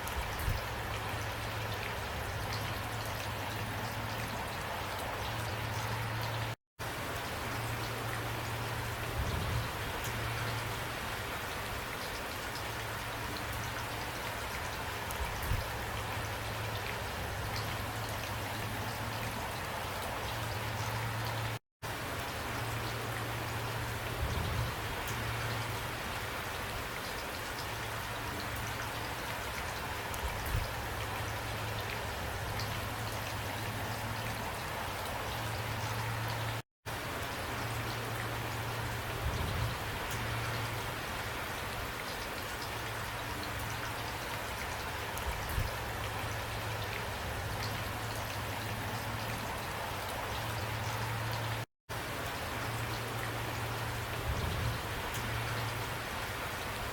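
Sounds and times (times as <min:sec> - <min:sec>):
rain pattering: 0:00.0 - 0:56.9.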